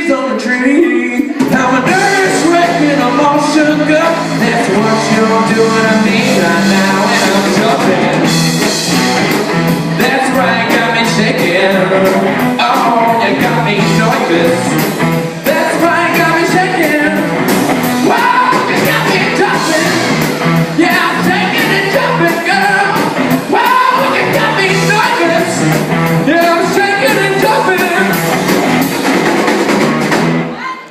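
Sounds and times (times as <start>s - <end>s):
person singing: 0.0s - 8.3s, 10.0s - 17.3s, 18.0s - 28.3s
rock and roll band playing: 0.0s - 30.9s
steady drum beat: 1.3s - 30.5s.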